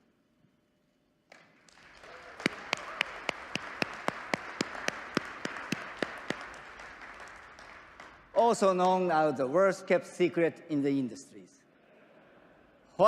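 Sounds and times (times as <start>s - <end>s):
audience applauding: 1.3s - 8.4s.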